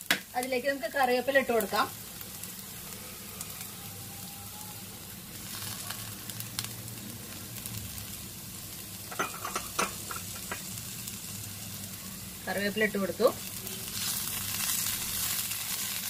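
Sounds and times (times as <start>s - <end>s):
sharp crackles in oil: 0.0s - 8.3s, 13.2s - 16.0s
vegetables sizzling in hot oil: 0.0s - 16.0s.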